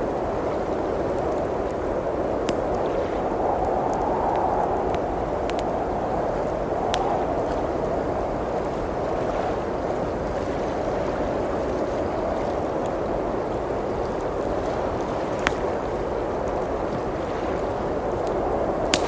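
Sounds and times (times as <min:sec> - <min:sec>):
blizzard wind: 0:00.0 - 0:19.0
wood fire crackling: 0:00.7 - 0:08.5, 0:18.0 - 0:19.0.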